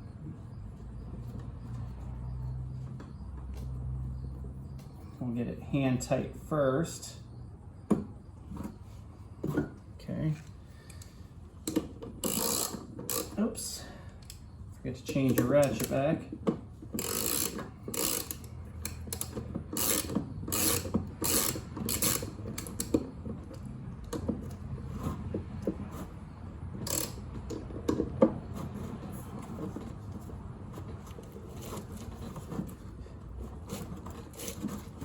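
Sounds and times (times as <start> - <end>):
socket ratchet clicking: 10.9 - 13.4, 17.0 - 23.0, 26.8 - 27.6.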